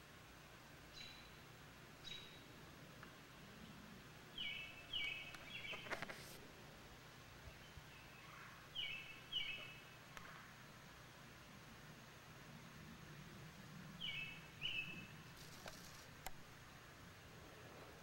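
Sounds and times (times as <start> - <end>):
songbird falling chirps: 4.4 - 6.0.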